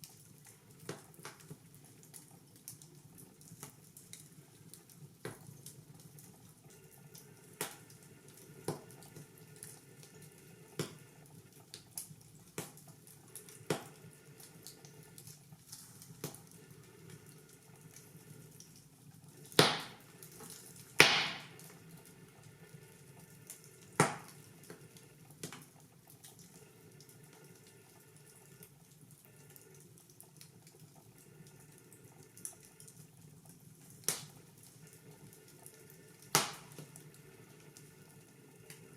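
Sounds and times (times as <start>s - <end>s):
wood fire crackling: 0.0s - 38.9s
loud fire pops: 19.5s - 20.1s, 21.0s - 21.8s, 23.9s - 24.4s, 34.0s - 34.4s, 36.2s - 36.9s.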